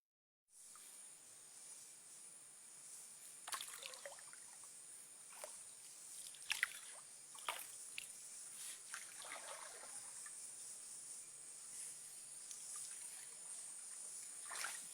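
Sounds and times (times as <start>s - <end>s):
paddle splashing in water: 6.2s - 7.8s, 8.9s - 10.3s, 14.4s - 14.9s.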